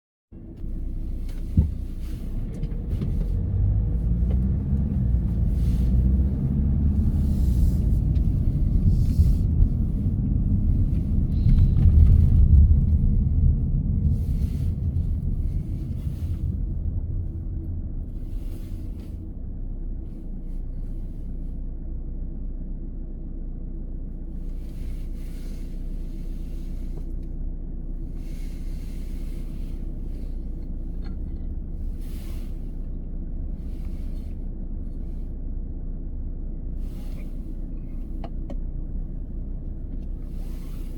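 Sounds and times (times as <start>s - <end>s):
car engine and road noise: 0.3s - 40.9s.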